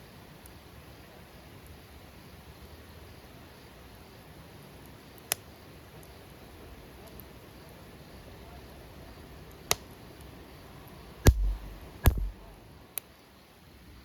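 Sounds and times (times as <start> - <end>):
heavy knocks with low rumble: 11.3 - 12.5
sharp click: 11.3 - 13.1.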